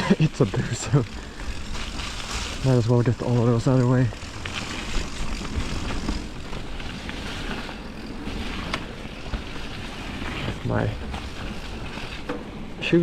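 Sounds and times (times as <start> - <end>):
bike tyre noise: 0.0 - 13.0
bike clicks and knocks: 3.2 - 12.6.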